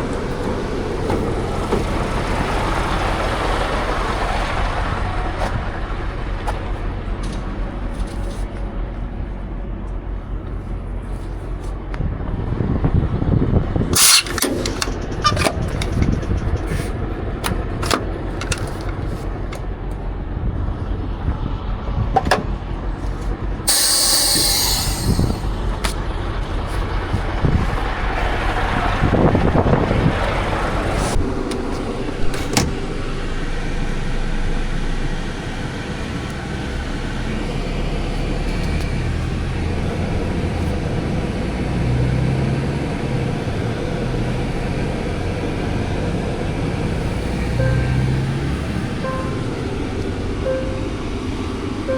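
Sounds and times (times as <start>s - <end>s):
truck engine rumbling: 0.0s - 51.9s
short hiss burst: 14.0s - 14.9s, 23.7s - 25.6s
sharp clicks and knocks: 14.0s - 19.6s.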